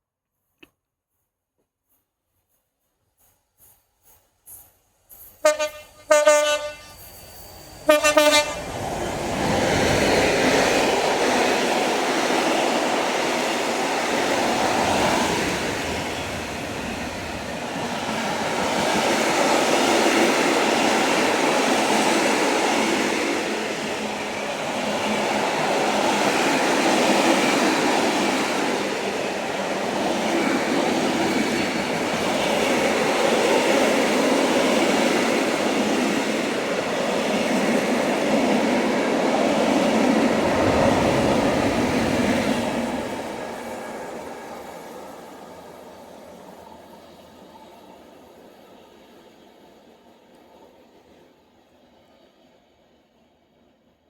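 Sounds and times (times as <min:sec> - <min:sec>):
train wheels rushing on rail: 0:03.1 - 0:51.3
train horn blasts: 0:05.4 - 0:07.0, 0:07.8 - 0:08.7.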